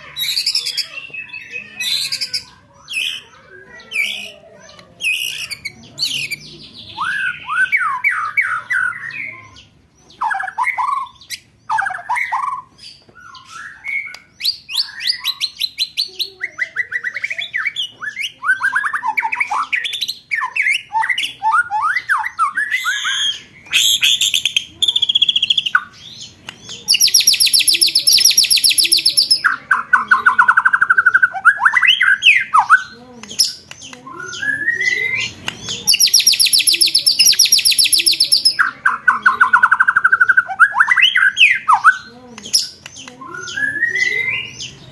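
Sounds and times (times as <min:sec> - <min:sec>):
high fast rattling chatter: 0:00.0 - 0:11.8, 0:22.8 - 0:41.7
songbird trills: 0:00.0 - 0:44.9.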